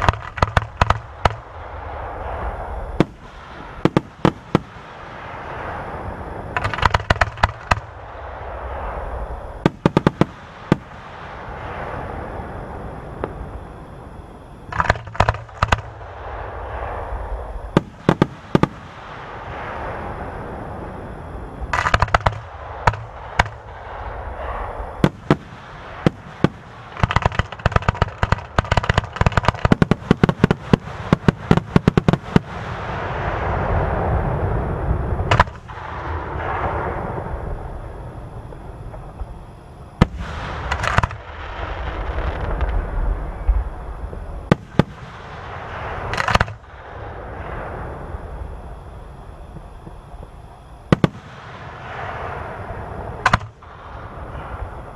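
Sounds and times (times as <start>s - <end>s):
crackling firework fizz: 0.0s - 54.9s
crackling firework reports: 0.0s - 54.9s
firework shell bursts and bangs: 6.6s - 7.9s.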